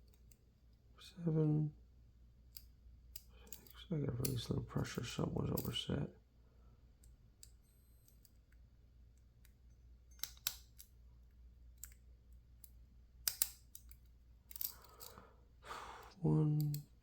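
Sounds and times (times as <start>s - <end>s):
lock pick clicking: 9.2s - 11.0s, 11.7s - 12.0s, 12.6s - 15.2s.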